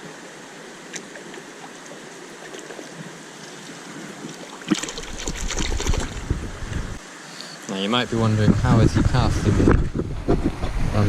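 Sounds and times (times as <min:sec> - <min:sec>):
river water flowing: 0:00.0 - 0:08.4
small splashes: 0:00.9 - 0:06.3.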